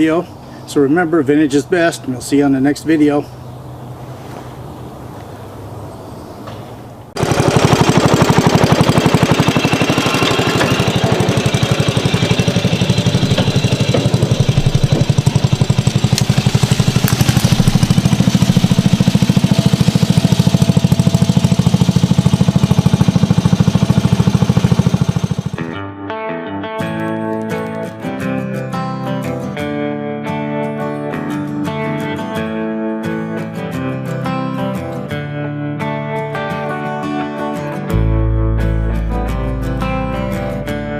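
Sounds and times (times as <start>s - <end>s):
small engine running: 7.2s - 25.7s.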